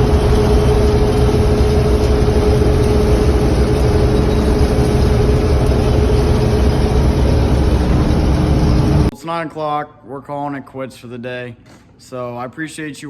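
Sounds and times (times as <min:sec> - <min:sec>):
farm machinery engine rumble: 0:00.0 - 0:09.1
steady machine whine: 0:00.0 - 0:09.1.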